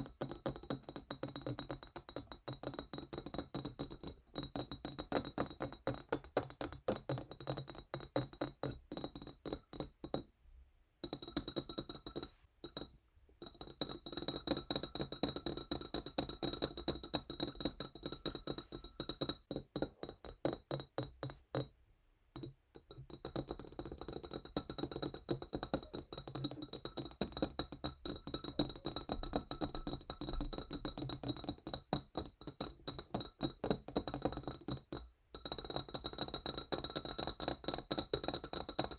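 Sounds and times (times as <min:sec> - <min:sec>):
fingernails tapping wine glass: 0:11.0 - 0:21.7, 0:22.3 - 0:38.9.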